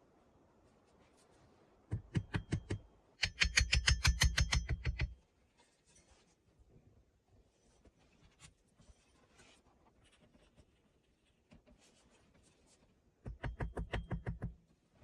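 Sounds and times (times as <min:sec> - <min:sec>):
faint scratching and rubbing: 0:00.5 - 0:01.9, 0:05.4 - 0:13.2.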